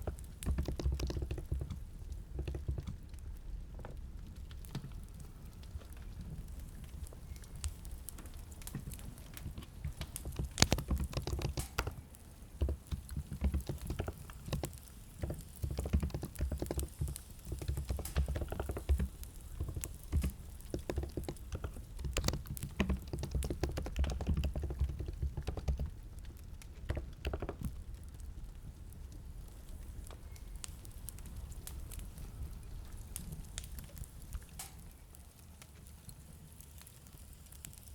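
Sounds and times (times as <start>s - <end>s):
keyboard typing: 0.1s - 1.8s, 9.3s - 12.0s, 12.6s - 26.0s.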